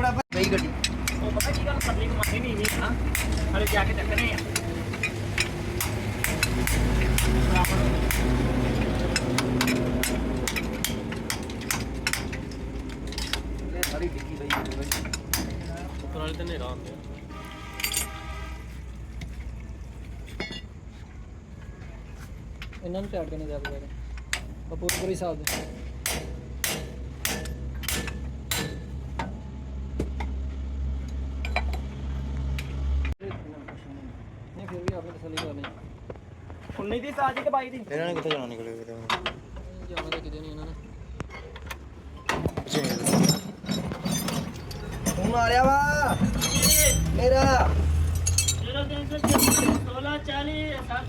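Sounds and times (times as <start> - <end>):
hammer striking metal: 0.3 - 12.6, 13.2 - 15.9, 24.3 - 29.4, 44.1 - 49.9
sharp metal clicks and knocks: 0.3 - 17.2, 23.6 - 29.4, 37.3 - 40.4, 41.2 - 49.9.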